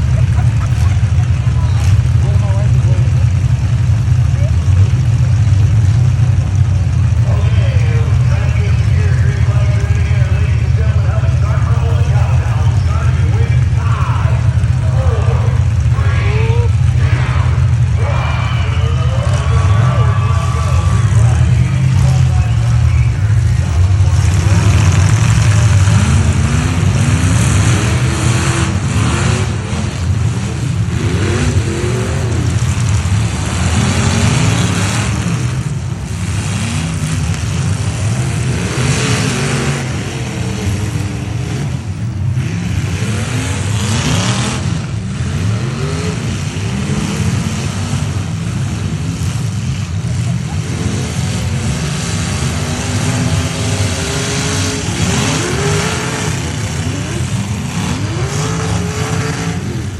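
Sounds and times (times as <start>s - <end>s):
truck engines revving: 0.0s - 59.9s.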